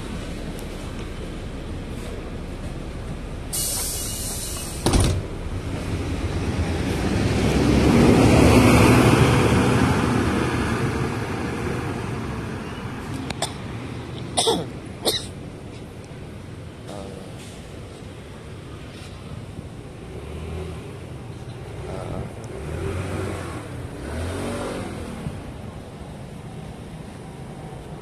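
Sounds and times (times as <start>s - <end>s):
bus engine: 0.0s - 28.0s
road noise: 0.0s - 28.0s
air hiss: 3.5s - 5.0s.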